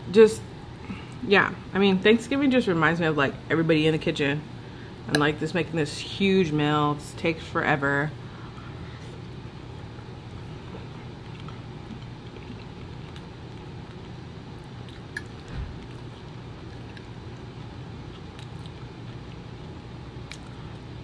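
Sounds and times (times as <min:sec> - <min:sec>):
low room hum: 0:00.0 - 0:21.0
person chewing food: 0:10.0 - 0:20.9.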